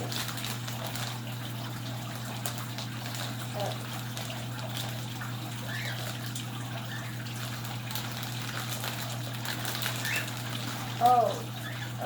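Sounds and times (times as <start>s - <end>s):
wrapped package crackling: 0.0s - 5.1s, 7.4s - 11.1s.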